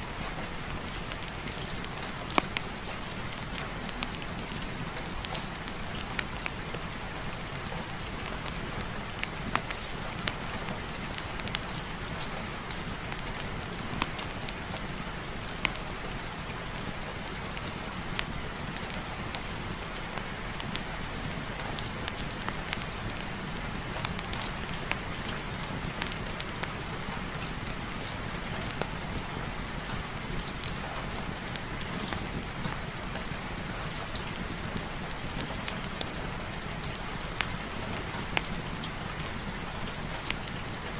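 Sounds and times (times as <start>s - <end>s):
heavy rain falling: 0.0s - 40.9s
sharp clicks and ticks: 24.0s - 26.8s.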